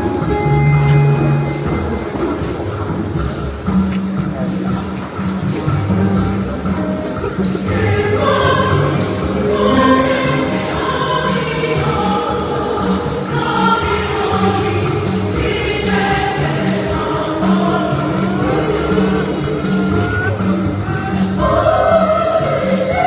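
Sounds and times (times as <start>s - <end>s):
instrumental accompaniment: 0.0s - 23.0s
steady bass line: 0.0s - 23.0s
choir singing gospel music: 5.1s - 23.0s.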